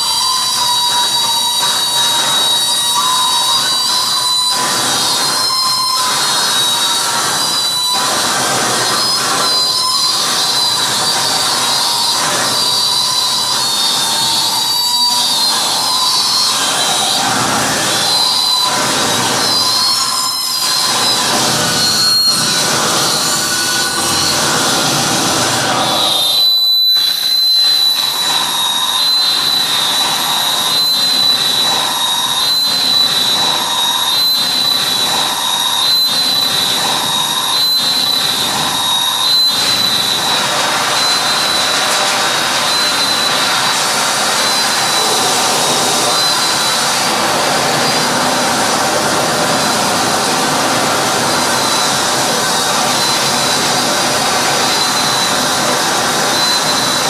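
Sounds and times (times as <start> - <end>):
high whistling tone: 0.0 - 57.0
dense electronic noise: 1.8 - 57.0.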